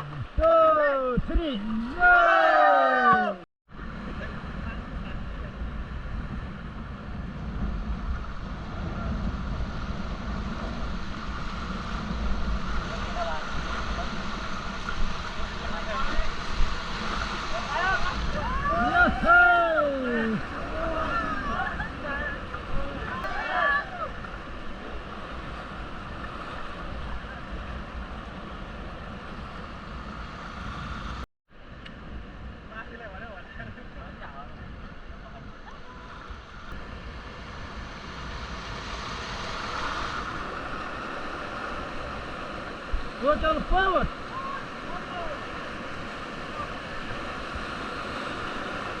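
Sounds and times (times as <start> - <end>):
wind buffeting microphone: 3.7 - 31.2
river water rushing: 10.9 - 27.5, 35.9 - 49.0.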